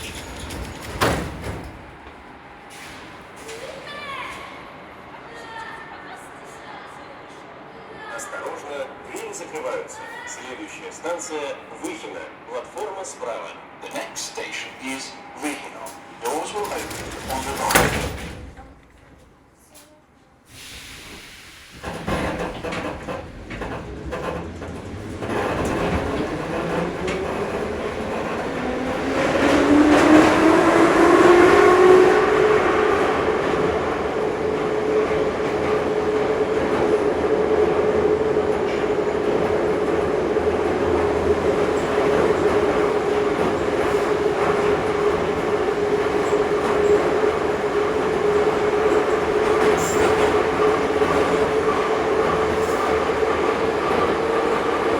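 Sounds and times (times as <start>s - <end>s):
train clunks: 0.0s - 4.6s, 8.4s - 20.0s, 20.6s - 54.9s
wheels rumbling on rails: 0.0s - 6.6s, 15.9s - 19.4s, 21.1s - 54.9s.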